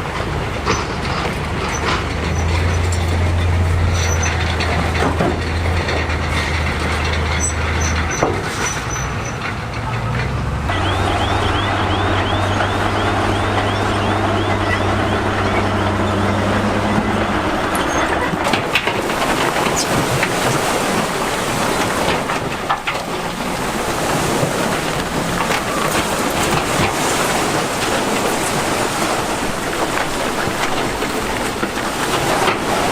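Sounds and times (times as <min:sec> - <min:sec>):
diesel machinery engine drone: 0:00.0 - 0:32.9
high squeal: 0:01.7 - 0:04.6, 0:10.7 - 0:18.5.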